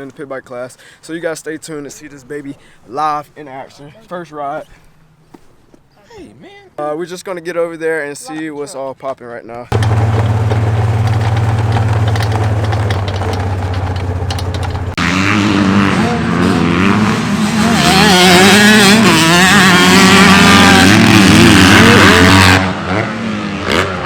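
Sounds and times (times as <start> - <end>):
motor engine running steadily: 9.7 - 15.0
dirt bike engines revving: 9.7 - 17.0.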